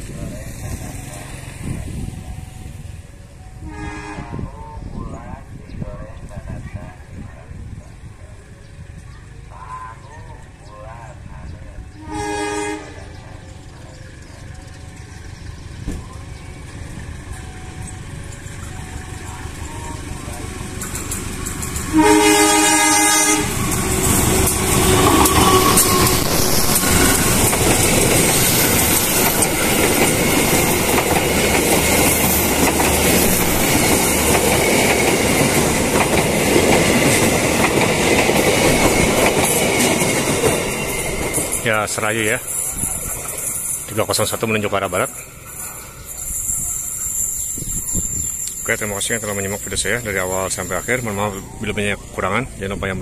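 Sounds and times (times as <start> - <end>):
locomotive engine: 0.0 - 5.6, 6.2 - 53.0
train horn blast: 3.6 - 4.8, 11.9 - 13.2, 21.9 - 23.7, 24.6 - 27.4
wheel-on-rail noise: 5.6 - 53.0.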